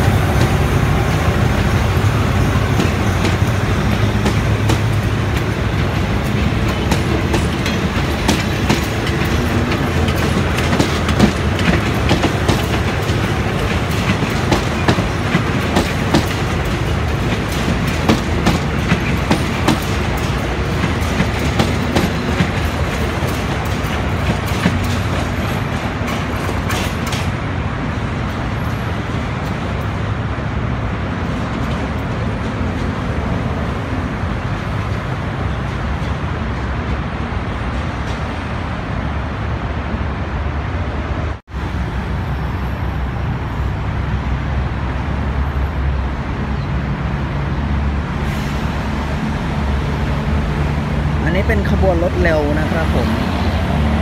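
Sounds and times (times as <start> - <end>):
train wheels clacking over rail joints: 0.0 - 27.4.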